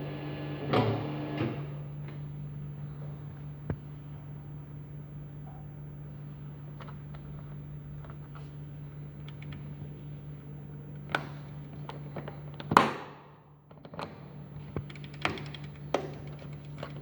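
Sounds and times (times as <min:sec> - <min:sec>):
dough mixer motor humming: 0:00.0 - 0:02.0.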